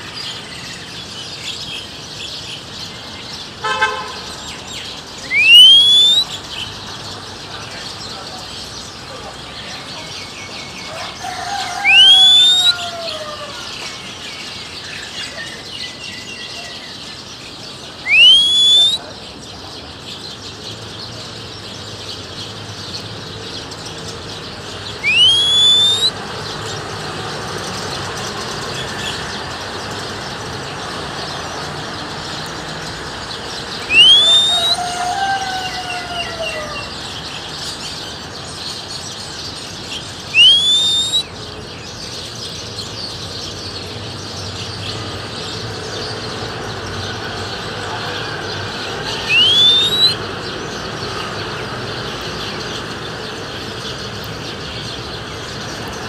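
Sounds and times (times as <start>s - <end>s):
birds chirping: 0.0s - 56.0s
person whistling rising whistles: 5.3s - 6.3s, 11.8s - 12.8s, 18.1s - 19.0s, 25.0s - 26.1s, 33.9s - 34.8s, 40.3s - 41.2s, 49.3s - 50.2s.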